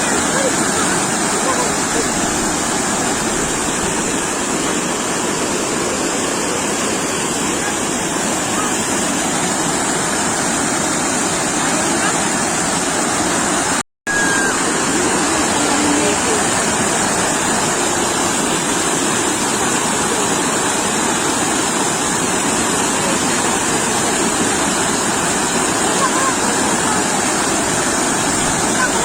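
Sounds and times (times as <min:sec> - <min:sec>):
sea waves washing onto shore: 0:00.0 - 0:29.0.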